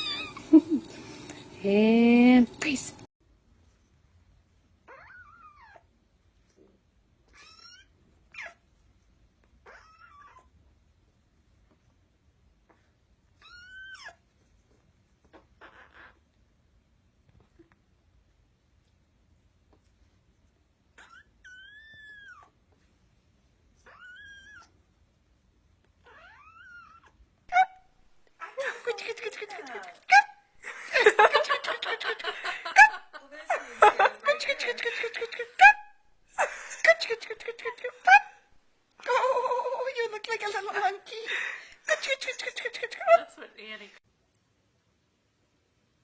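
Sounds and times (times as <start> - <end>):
kittens mewing: 0.0 - 0.5.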